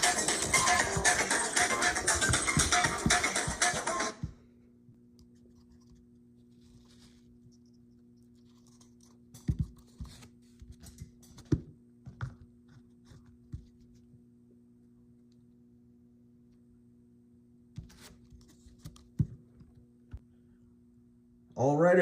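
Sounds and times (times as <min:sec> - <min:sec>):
music: 0:00.0 - 0:04.3
scratching and rustling handling: 0:05.4 - 0:11.4.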